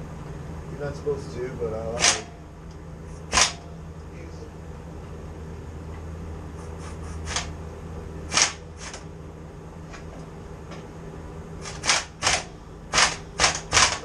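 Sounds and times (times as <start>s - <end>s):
steady low hum: 0.0s - 14.0s
sharp metallic clicks: 2.0s - 3.7s, 8.3s - 9.0s, 11.6s - 14.0s.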